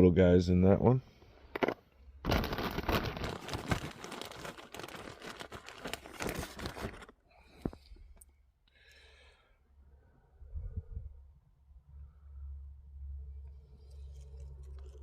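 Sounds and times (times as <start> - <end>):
bag crinkling and rustling: 1.6 - 8.0.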